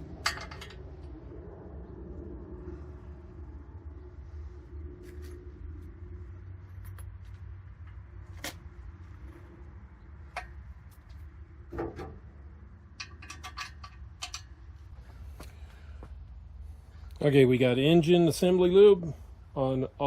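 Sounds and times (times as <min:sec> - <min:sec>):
steady low hum: 0:00.0 - 0:20.0
metal parts and tools clicking: 0:12.9 - 0:14.6.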